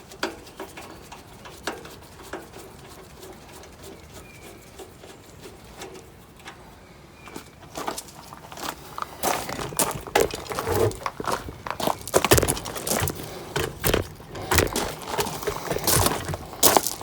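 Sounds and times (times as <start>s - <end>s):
irregular knocks and clatter: 7.4s - 17.0s.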